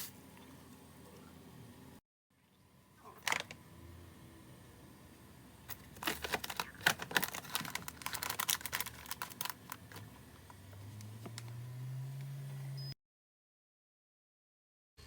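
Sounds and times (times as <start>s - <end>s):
low steady hum: 0.0s - 13.0s
small hard objects clattering: 5.7s - 10.1s.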